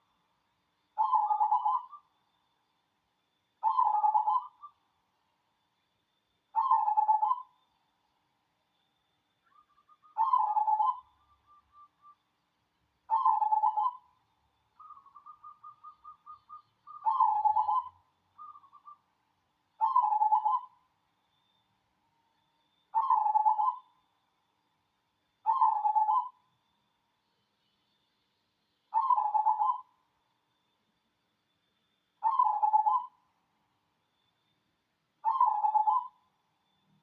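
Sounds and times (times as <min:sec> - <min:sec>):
dove cooing: 0:01.0 - 0:02.0, 0:03.6 - 0:04.7, 0:06.6 - 0:07.5, 0:10.2 - 0:11.1, 0:13.1 - 0:14.0, 0:14.8 - 0:19.0, 0:19.8 - 0:20.7, 0:23.0 - 0:23.8, 0:25.5 - 0:26.4, 0:28.9 - 0:29.9, 0:32.2 - 0:33.1, 0:35.2 - 0:36.2.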